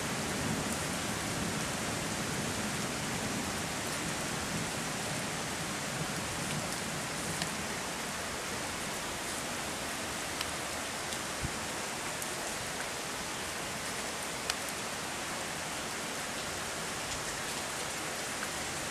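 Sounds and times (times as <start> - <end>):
heavy rain: 0.0 - 18.9
raindrops tapping close by: 6.3 - 7.7.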